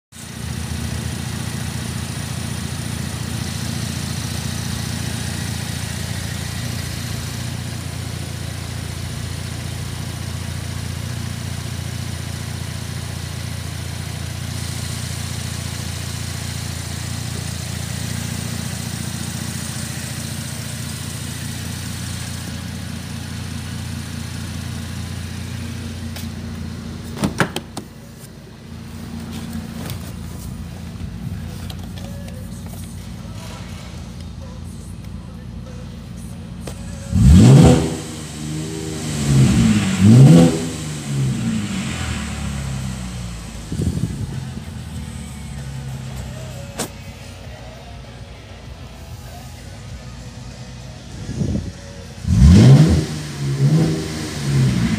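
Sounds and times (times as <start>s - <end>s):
car engine idling: 0.1s - 54.9s
sharp clicks and knocks: 27.2s - 27.9s.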